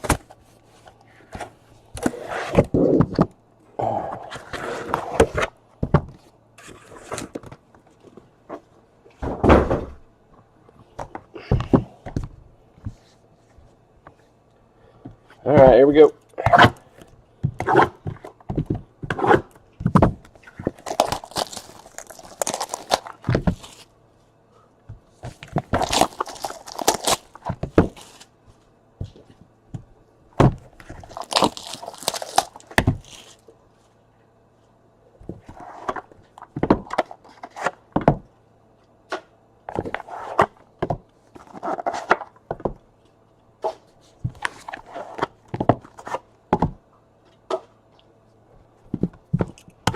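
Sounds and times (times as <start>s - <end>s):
box knocks and thunks: 9.2s - 10.0s, 17.4s - 20.8s, 30.4s - 30.7s, 46.5s - 46.8s
wrapping and cardboard tearing: 20.4s - 23.9s, 25.4s - 28.3s, 30.8s - 33.4s.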